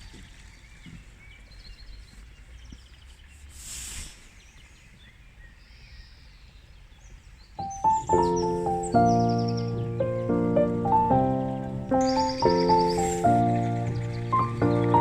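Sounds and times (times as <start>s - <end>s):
small birds chirping: 0.0s - 15.0s
rush of hiss: 3.5s - 4.4s, 12.1s - 14.7s.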